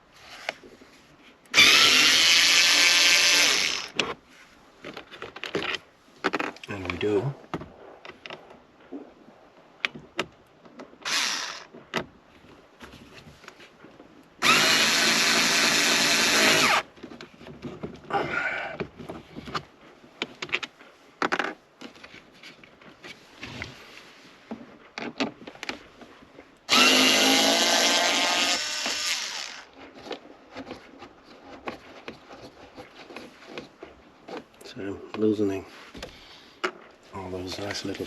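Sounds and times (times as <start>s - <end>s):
electric screwdriver motor whining: 1.6s - 3.9s, 11.0s - 11.7s, 14.4s - 16.8s, 26.7s - 29.7s.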